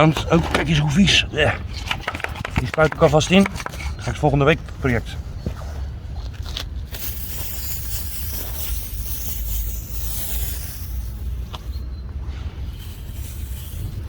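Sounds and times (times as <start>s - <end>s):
constant low rumble: 0.0s - 14.0s
hand sprayer hissing: 6.9s - 14.0s.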